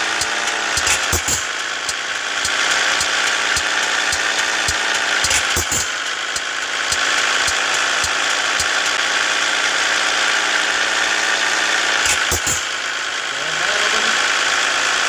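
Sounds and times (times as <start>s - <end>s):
regular ticking: 0.0s - 10.0s
truck engine running: 0.0s - 15.0s.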